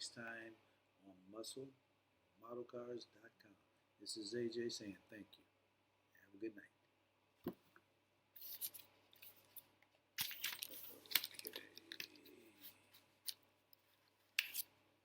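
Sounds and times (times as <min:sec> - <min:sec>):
plastic pieces clicking and rustling: 0:10.2 - 0:12.4, 0:14.4 - 0:14.6.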